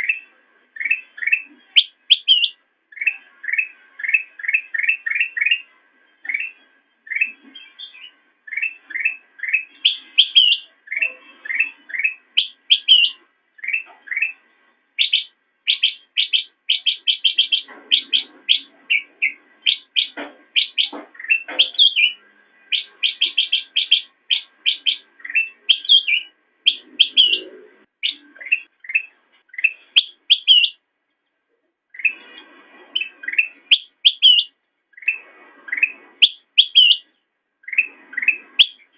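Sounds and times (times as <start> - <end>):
bulbul chirping: 0.0 - 14.4, 15.0 - 30.8, 33.0 - 38.9.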